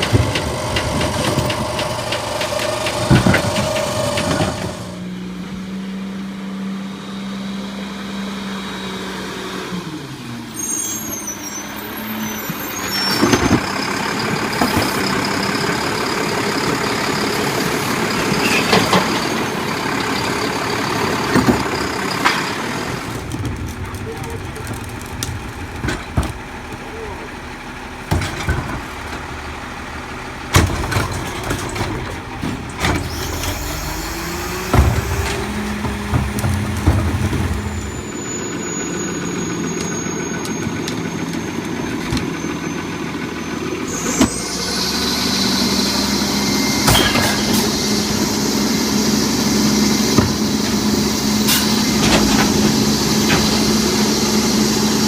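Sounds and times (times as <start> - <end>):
garbage truck engine running: 0.0 - 55.0
metal clanks and knocks: 21.3 - 38.3.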